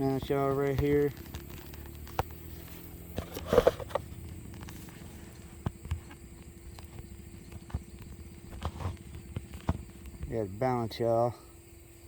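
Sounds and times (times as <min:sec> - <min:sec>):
scrape and rustle: 0:00.4 - 0:06.2, 0:08.5 - 0:10.0.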